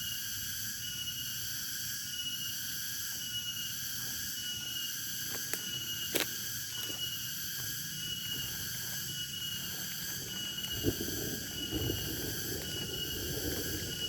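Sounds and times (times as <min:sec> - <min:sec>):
insects shrilling: 0:00.0 - 0:14.0.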